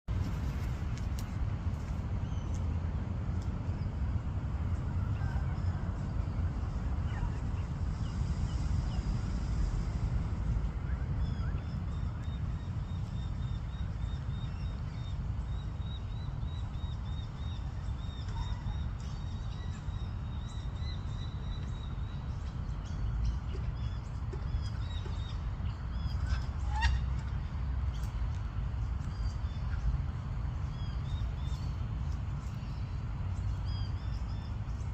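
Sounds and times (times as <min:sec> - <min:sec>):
steady low rumble: 0:00.0 - 0:34.9
birds chirping: 0:10.6 - 0:34.9.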